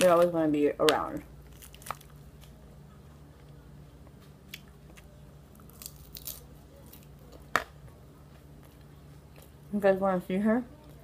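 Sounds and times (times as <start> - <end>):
steady low hum: 0.0 - 11.0
chewing salad: 1.4 - 9.6.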